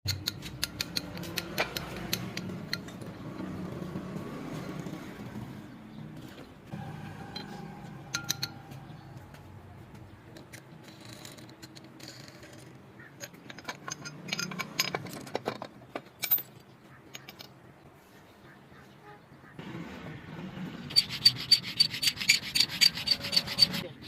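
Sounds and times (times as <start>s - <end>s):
metal tools clinking: 7.3s - 9.2s, 13.2s - 17.6s.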